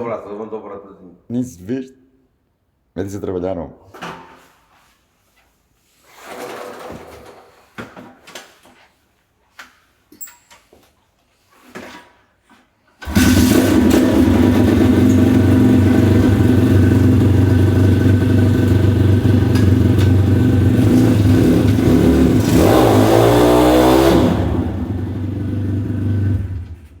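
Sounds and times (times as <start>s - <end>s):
motorcycle engine idling and revving: 13.0s - 27.0s.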